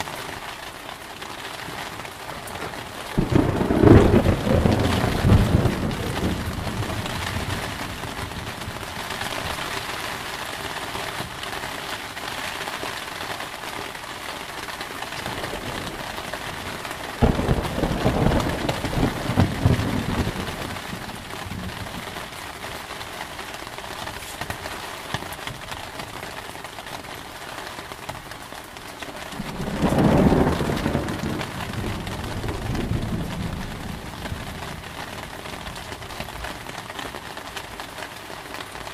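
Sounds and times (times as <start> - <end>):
steady rain: 0.0 - 38.9
thunder rumbling: 2.3 - 9.9, 15.2 - 22.6, 29.3 - 36.8
sharp thunderclap: 2.6 - 8.8, 16.6 - 22.0, 29.4 - 34.9.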